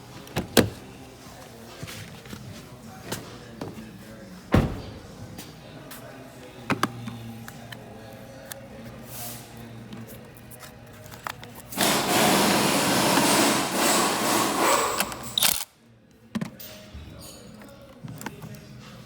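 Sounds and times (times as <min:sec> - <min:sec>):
power tool running: 0:11.8 - 0:15.4.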